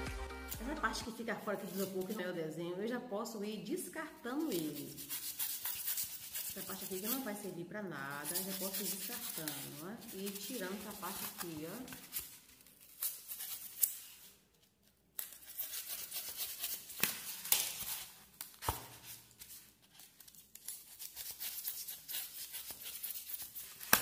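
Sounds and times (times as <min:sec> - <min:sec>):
knife cutting styrofoam: 0:04.4 - 0:07.3, 0:08.1 - 0:14.2, 0:15.2 - 0:19.4, 0:20.3 - 0:24.0.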